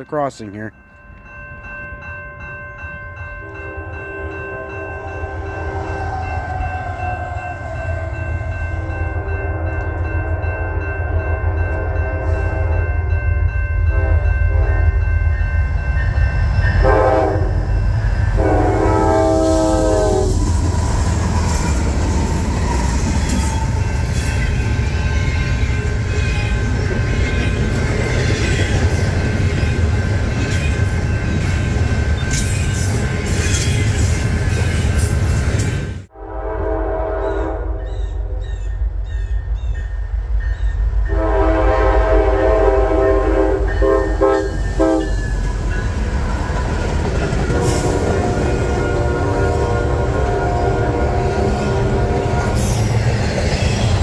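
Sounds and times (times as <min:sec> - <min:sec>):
crossing signal bell ringing: 0:00.0 - 0:20.4, 0:21.3 - 0:35.6, 0:38.6 - 0:46.6
train horn blasts: 0:03.5 - 0:13.0, 0:13.8 - 0:15.2, 0:16.7 - 0:20.5, 0:36.1 - 0:38.5, 0:41.0 - 0:45.2, 0:47.5 - 0:52.9.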